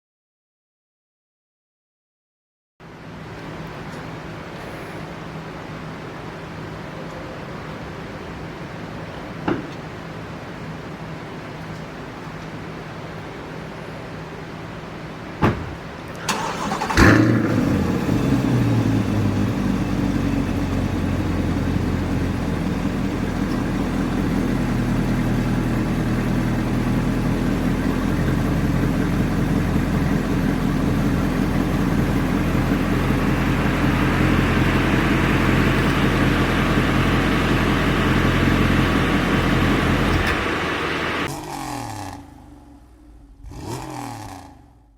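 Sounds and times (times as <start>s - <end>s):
engine cranking: 16.1s - 42.5s
ignition click: 16.2s - 17.1s, 39.6s - 41.2s
car engine revving and idling: 16.3s - 44.9s.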